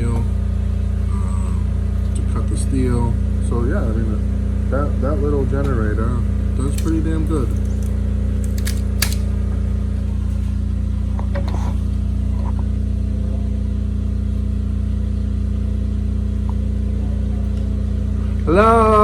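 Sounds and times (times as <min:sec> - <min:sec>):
generator engine humming: 0:05.9 - 0:10.5.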